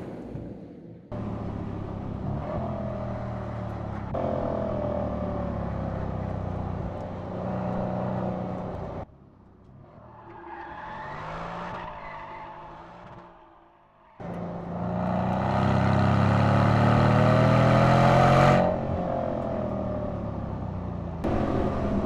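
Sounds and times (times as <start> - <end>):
car engine accelerating hard: 14.2 - 22.0.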